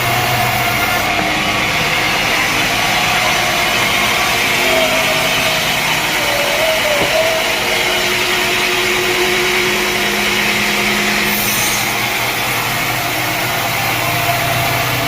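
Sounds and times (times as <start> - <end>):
sawmill machinery motor: 0.0 - 15.0
wavering whine: 0.0 - 15.0
low hum: 1.4 - 11.2.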